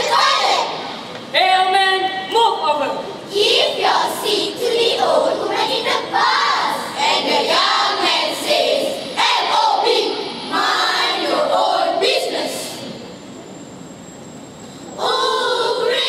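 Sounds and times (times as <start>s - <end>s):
children chanting in unison: 0.0s - 0.9s, 3.3s - 13.0s, 15.0s - 16.0s.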